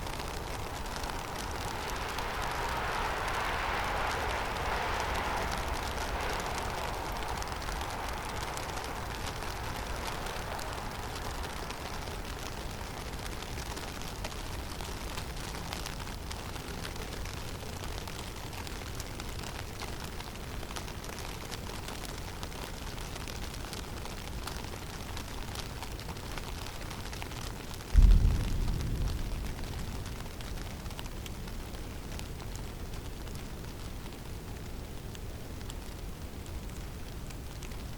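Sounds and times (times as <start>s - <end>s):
mid-pitched rush: 0.0s - 13.3s
snowstorm wind through forest: 0.0s - 37.9s
loud low thump: 28.0s - 30.3s.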